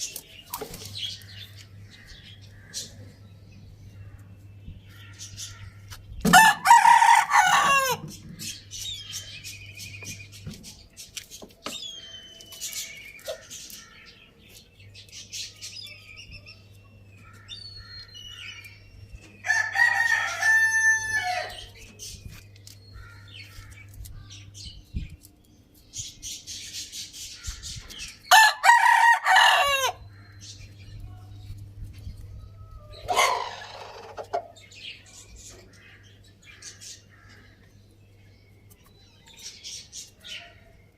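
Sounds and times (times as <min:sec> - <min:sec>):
low steady hum: 0:00.0 - 0:40.9
roosters crowing: 0:05.2 - 0:08.5, 0:19.3 - 0:21.8, 0:28.3 - 0:30.1, 0:32.5 - 0:34.4
hens clucking: 0:33.0 - 0:34.6.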